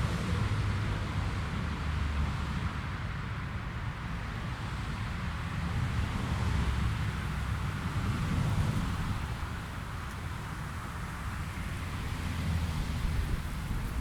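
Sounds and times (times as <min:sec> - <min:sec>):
wind buffeting microphone: 0:12.2 - 0:14.0.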